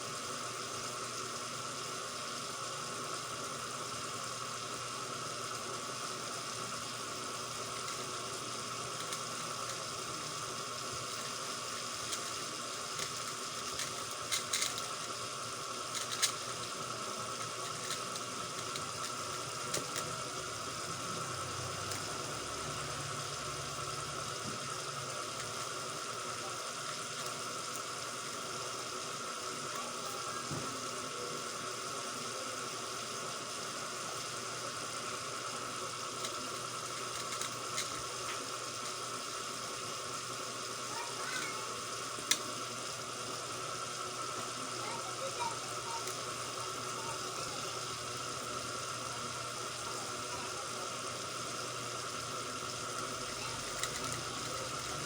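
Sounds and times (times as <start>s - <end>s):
speed cube clicking: 7.6s - 22.3s, 25.1s - 26.0s, 36.1s - 39.0s, 45.8s - 47.9s, 52.6s - 55.0s.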